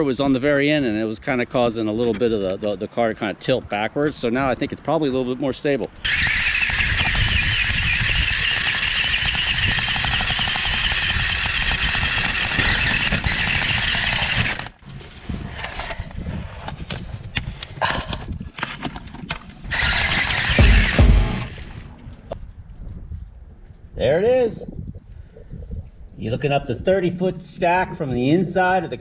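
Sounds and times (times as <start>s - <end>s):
rc car motor whining: 6.0s - 14.8s, 19.7s - 21.6s
heavy low thump: 20.6s - 21.8s.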